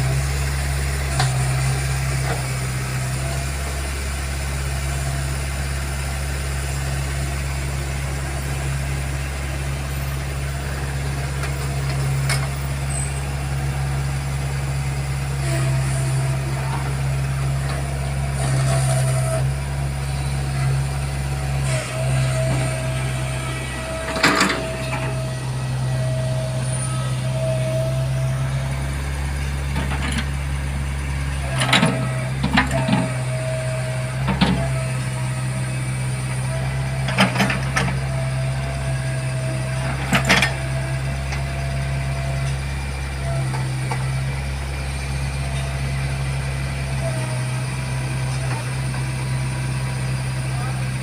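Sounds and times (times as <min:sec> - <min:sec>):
diesel engine under load: 0:00.0 - 0:51.0.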